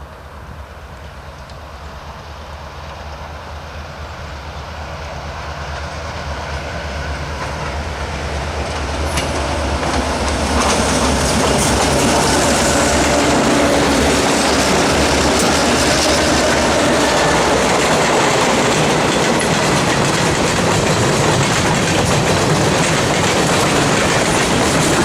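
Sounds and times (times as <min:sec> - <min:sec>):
rail noise: 0:00.0 - 0:25.0
locomotive engine rumble: 0:00.2 - 0:25.0
train wheel clicks: 0:08.6 - 0:25.0.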